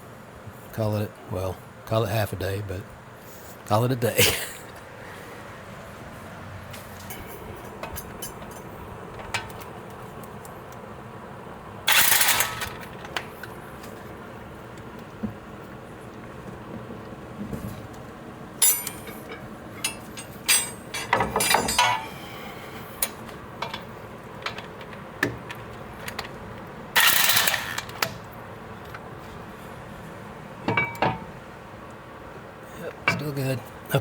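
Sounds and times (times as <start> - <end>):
metal tools clinking and knocking: 18.6 - 22.9, 30.7 - 31.3.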